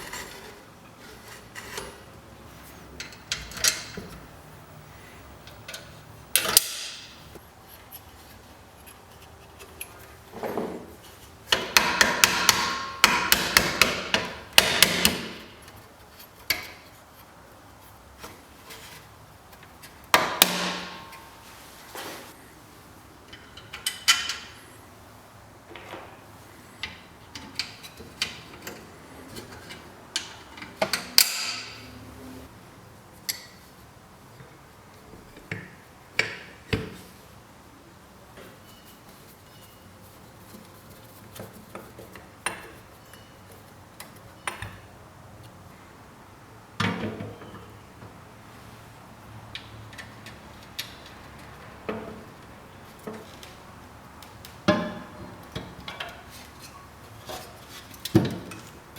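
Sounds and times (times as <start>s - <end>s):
hand tools knocking and clicking: 11.5s - 15.6s.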